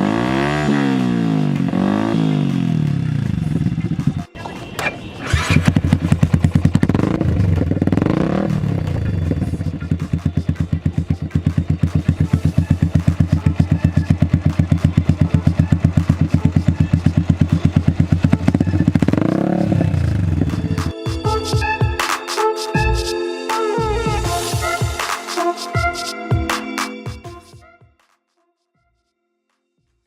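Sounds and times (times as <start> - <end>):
motorcycle engine idling and revving: 0.0 - 21.8.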